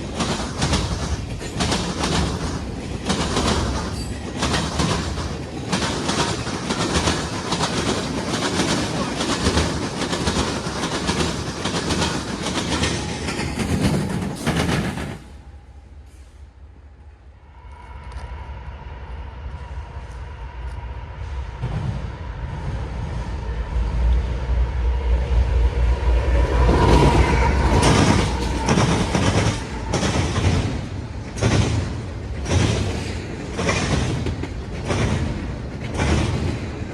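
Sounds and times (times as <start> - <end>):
train wheels clacking over rail joints: 0.0 - 15.3, 26.8 - 36.9.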